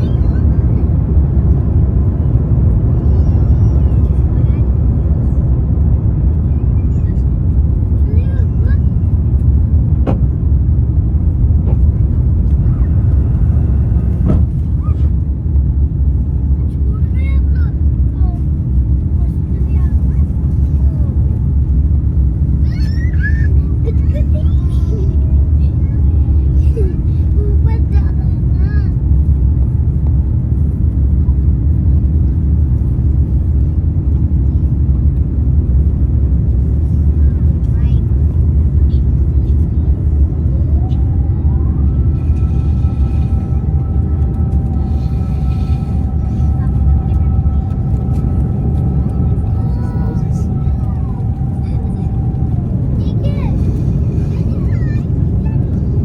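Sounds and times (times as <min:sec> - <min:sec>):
airplane cabin rumble: 0:00.0 - 0:56.0.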